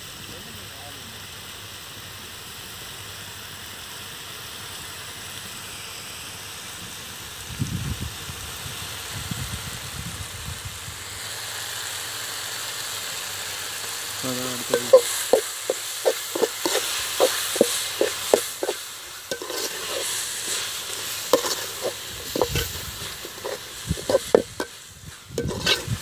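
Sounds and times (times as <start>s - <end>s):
vegetables sizzling in a pan: 0.0s - 26.0s.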